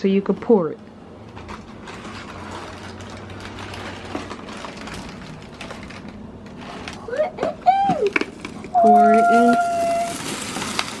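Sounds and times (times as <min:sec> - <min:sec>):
cereal rattling in cardboard box: 0:01.3 - 0:11.0.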